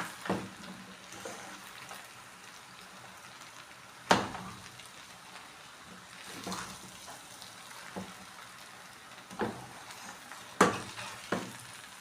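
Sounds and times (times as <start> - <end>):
noodles sizzling in a pan: 0.0 - 12.0.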